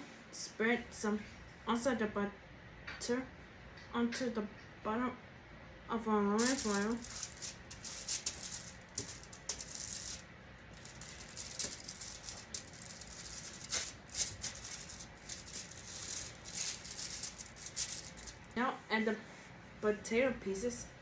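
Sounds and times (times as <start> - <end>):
aluminum foil crinkling: 6.4 - 18.6.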